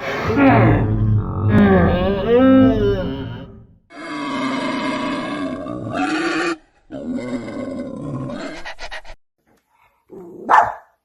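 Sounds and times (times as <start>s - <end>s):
large animal calling harshly: 3.9s - 7.7s.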